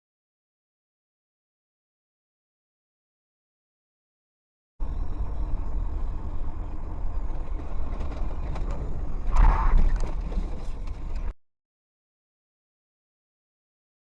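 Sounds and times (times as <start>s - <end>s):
road and engine rumble: 4.8s - 11.4s.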